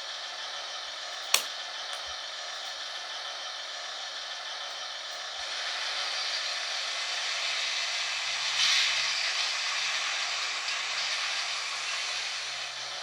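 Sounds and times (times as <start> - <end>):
model train rolling on track: 2.2 - 13.0.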